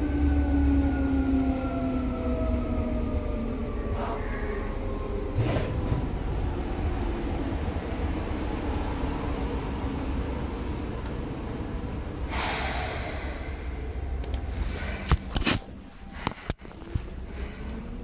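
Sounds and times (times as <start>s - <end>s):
electric train running rumble: 0.0s - 18.0s
sudden hiss: 12.3s - 13.9s.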